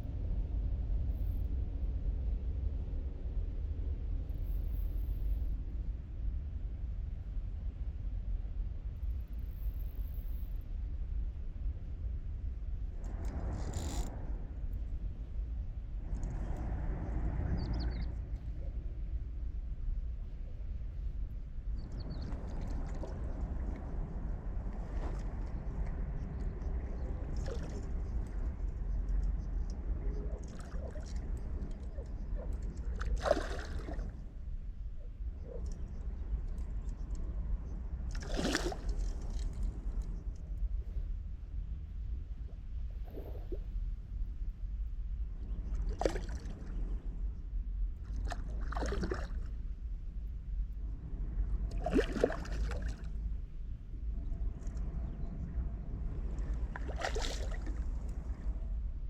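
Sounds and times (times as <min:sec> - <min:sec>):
steady low rumble: 0:00.0 - 0:59.0
water sloshing and gurgling: 0:15.8 - 0:41.0, 0:41.8 - 0:44.3, 0:45.2 - 0:47.2, 0:47.9 - 0:59.0
water sloshing and splashing: 0:22.0 - 0:24.0, 0:24.6 - 0:28.6, 0:29.3 - 0:34.2, 0:38.1 - 0:40.0, 0:45.8 - 0:46.9, 0:48.0 - 0:49.6, 0:51.6 - 0:53.2, 0:56.2 - 0:58.6.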